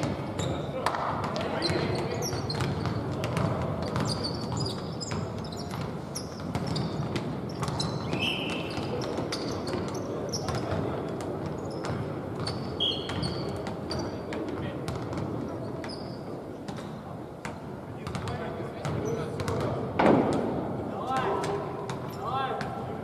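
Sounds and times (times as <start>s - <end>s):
basketball bouncing on court: 0.0s - 22.8s
short high squeaks: 11.7s - 14.2s.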